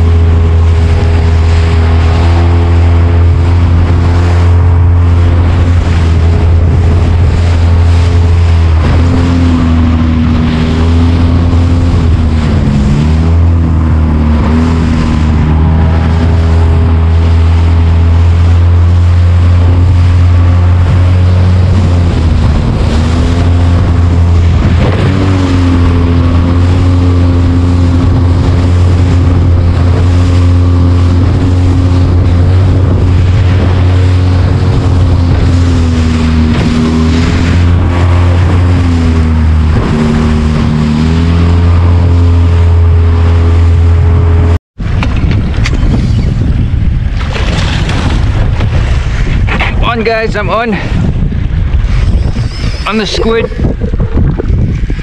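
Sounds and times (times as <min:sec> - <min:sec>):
outboard motor running: 0:00.0 - 0:55.0
water noise: 0:00.0 - 0:55.0
wind: 0:00.0 - 0:55.0.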